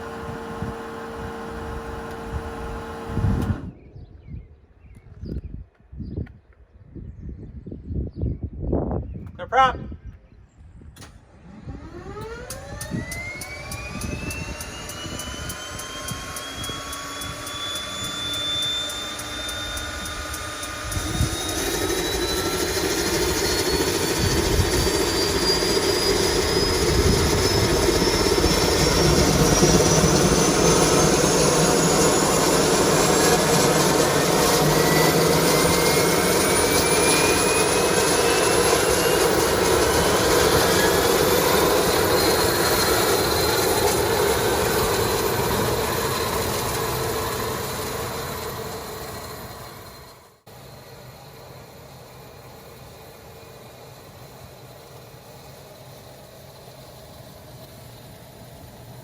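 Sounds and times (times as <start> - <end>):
engine rushing sound: 0.0 - 3.8, 11.1 - 50.4
turboprop engine whine: 0.0 - 59.0.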